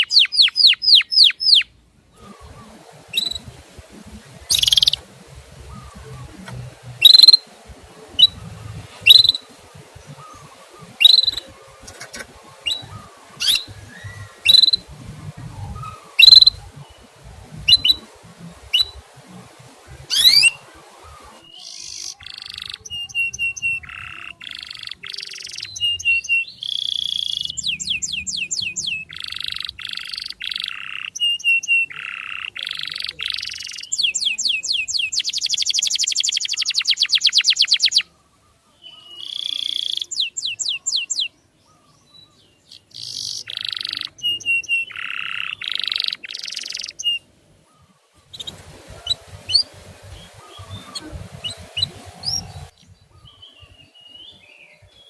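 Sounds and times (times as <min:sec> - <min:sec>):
bird sharp chirps: 0:00.0 - 0:02.4, 0:04.4 - 0:07.4, 0:09.0 - 0:19.0, 0:20.0 - 0:38.1, 0:38.7 - 0:54.9
canary singing trills: 0:00.0 - 0:55.0.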